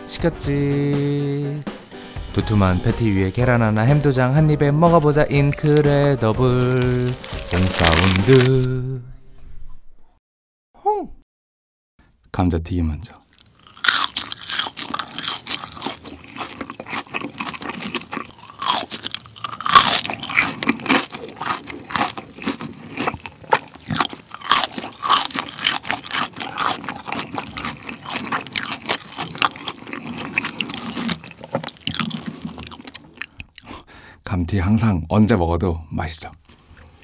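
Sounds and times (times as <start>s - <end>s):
chewing crunchy fries: 5.5s - 8.7s, 13.3s - 33.9s.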